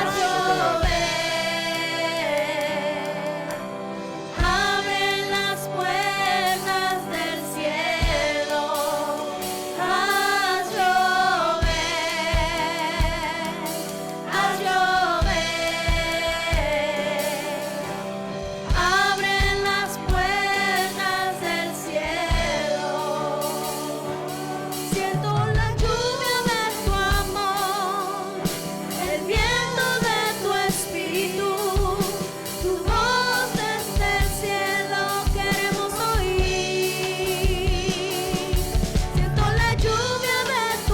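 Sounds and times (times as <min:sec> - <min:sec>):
backing voices: 0:00.0 - 0:02.8
drum kit steady beat: 0:00.0 - 0:03.6, 0:04.3 - 0:40.9
lead singer with vibrato: 0:00.0 - 0:40.9.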